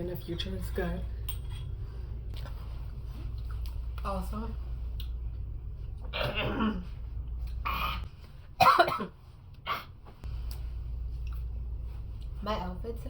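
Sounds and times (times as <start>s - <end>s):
woman coughing and clearing throat: 6.1s - 6.8s, 8.6s - 9.9s.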